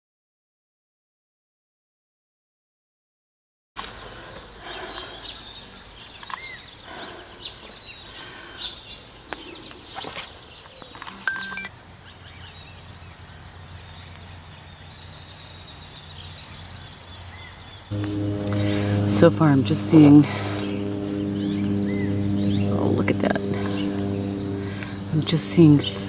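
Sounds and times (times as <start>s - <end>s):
small birds chirping: 3.8s - 19.4s, 20.5s - 26.0s
low steady hum: 17.9s - 26.0s.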